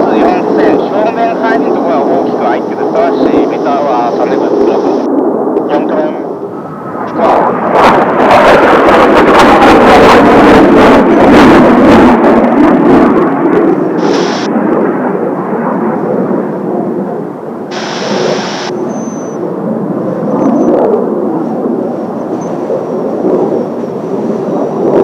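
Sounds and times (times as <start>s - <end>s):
jet aircraft roar passing over: 0.0s - 25.0s
short bursts of hiss: 14.0s - 14.5s, 17.7s - 18.7s.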